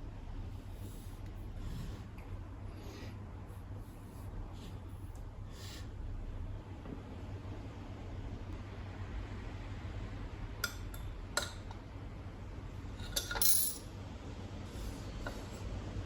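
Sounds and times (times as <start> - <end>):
steady low hum: 0.0 - 16.0
metallic clinks and clatter: 13.1 - 13.8.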